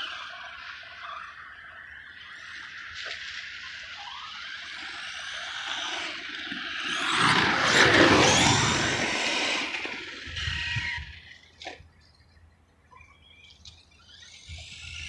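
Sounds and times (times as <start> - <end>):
electric motor whine: 0.0 - 11.3
tyres on dirt: 4.8 - 10.1.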